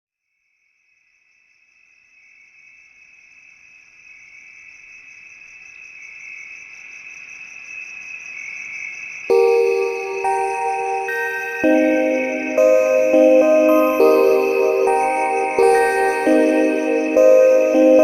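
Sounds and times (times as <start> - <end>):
crickets chirring: 0.6 - 18.0.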